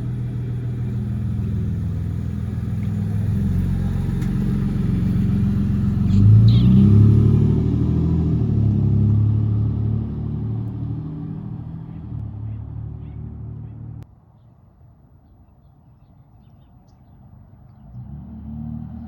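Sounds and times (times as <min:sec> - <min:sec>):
car exhaust rumble: 0:00.0 - 0:14.0.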